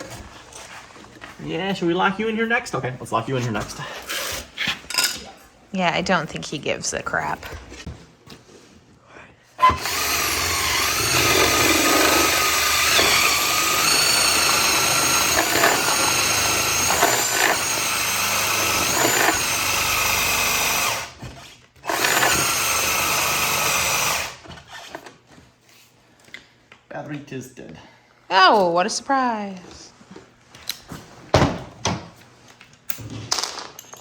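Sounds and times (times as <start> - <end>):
cordless drill motor whining: 9.6 - 21.2, 21.8 - 25.1.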